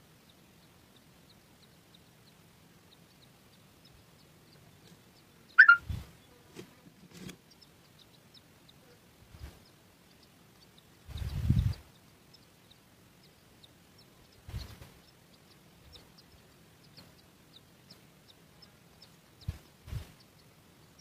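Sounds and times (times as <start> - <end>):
bird sweeping call: 5.6 - 5.8.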